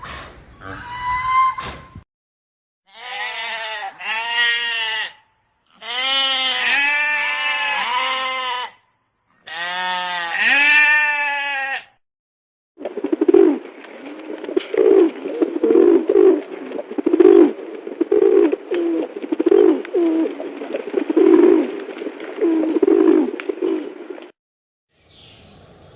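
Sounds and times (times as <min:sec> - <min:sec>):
goat or sheep bleating: 0:02.9 - 0:08.8, 0:09.4 - 0:12.0
pigeons cooing: 0:12.8 - 0:21.8, 0:22.4 - 0:24.0.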